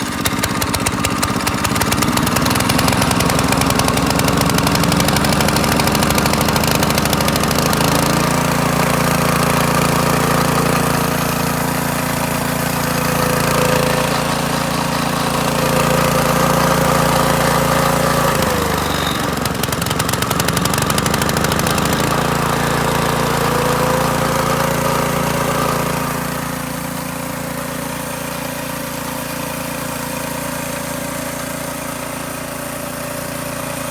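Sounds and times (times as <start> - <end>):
small engine running: 0.0 - 33.9.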